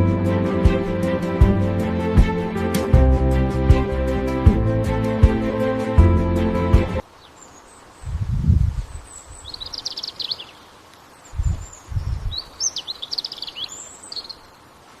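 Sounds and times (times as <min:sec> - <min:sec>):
faint outdoor hiss: 0:07.0 - 0:15.0
small birds trilling: 0:07.0 - 0:15.0.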